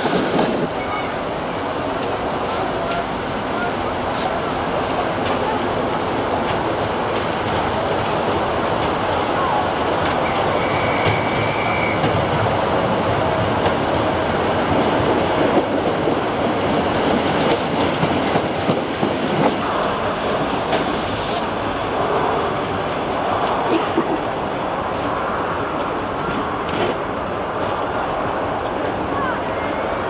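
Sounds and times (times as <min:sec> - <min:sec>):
high wheel squeal: 0:10.2 - 0:12.1.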